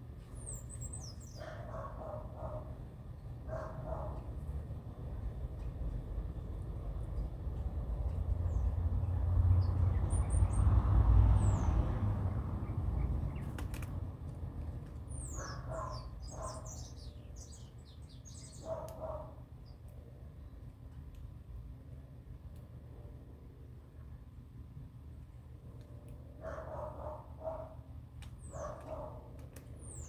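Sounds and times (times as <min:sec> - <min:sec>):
small birds chirping: 0:00.1 - 0:02.7, 0:08.1 - 0:14.0, 0:14.6 - 0:21.0, 0:26.5 - 0:30.0.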